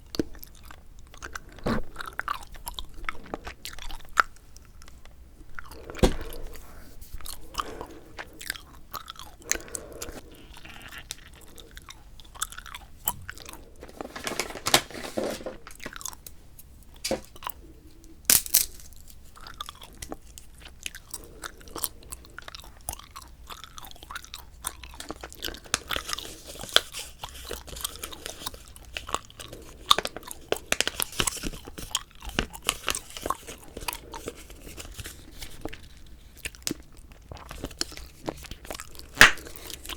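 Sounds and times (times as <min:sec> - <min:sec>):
gum chewing smacks and clicks: 0:00.0 - 0:06.6, 0:07.2 - 0:13.8, 0:19.0 - 0:35.0
gum snapping: 0:39.1 - 0:39.9.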